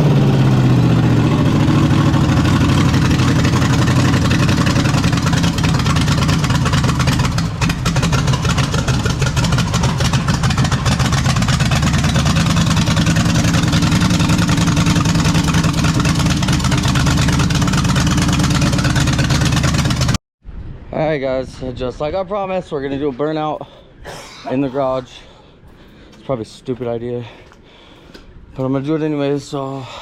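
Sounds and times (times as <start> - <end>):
race engine running: 0.0 - 20.2.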